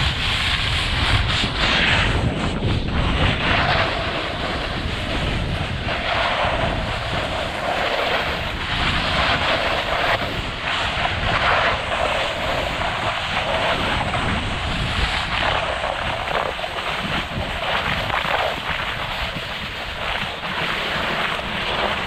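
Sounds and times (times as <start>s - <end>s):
skis scraping over snow: 0.0s - 22.0s
wind buffeting microphone: 0.0s - 22.0s.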